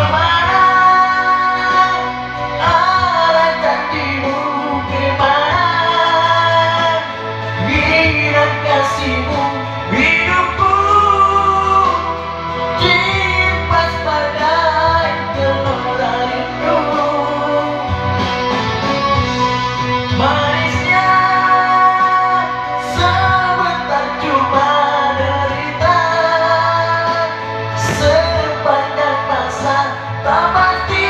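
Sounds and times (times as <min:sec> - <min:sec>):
backing music: 0:00.0 - 0:31.0
person singing slow song: 0:00.0 - 0:31.0.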